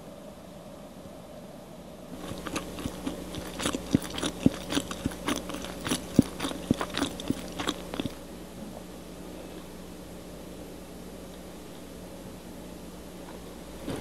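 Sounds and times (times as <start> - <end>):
person chewing cake: 2.1 - 8.2
mouth clicks and smacks: 2.2 - 8.2.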